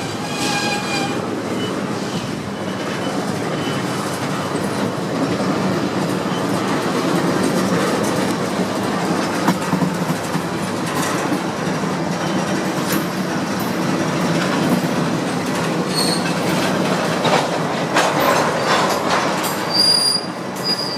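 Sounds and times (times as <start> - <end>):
high wheel squeal: 0.0 - 4.0, 15.9 - 16.5, 19.5 - 20.9
freight train cars rumbling: 0.0 - 20.9
wheels clacking over rail joints: 0.0 - 20.9.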